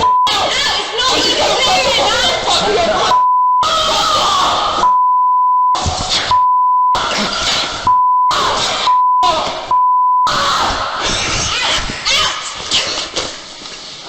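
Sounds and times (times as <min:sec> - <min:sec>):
censor beep tone: 0:00.0 - 0:00.3, 0:03.1 - 0:03.7, 0:04.8 - 0:07.0, 0:07.9 - 0:08.3, 0:08.9 - 0:10.3
loud chaotic commotion: 0:10.3 - 0:13.3.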